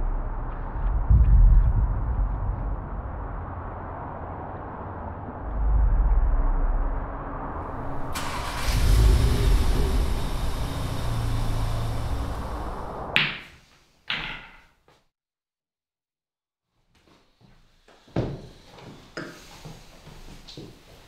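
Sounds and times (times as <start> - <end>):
car engine rumbling: 0.0 - 13.2
hiss: 8.1 - 13.1.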